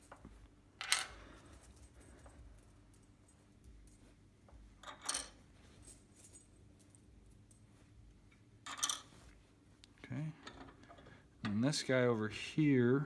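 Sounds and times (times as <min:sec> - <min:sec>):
metal washers clinking: 0:04.8 - 0:07.6, 0:08.6 - 0:09.2.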